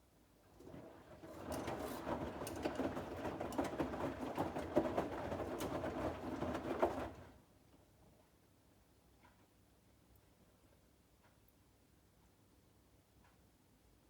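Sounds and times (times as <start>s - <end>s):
laundry tumbling with clatter: 0.4s - 7.4s
washing machine drum turning: 0.6s - 7.3s.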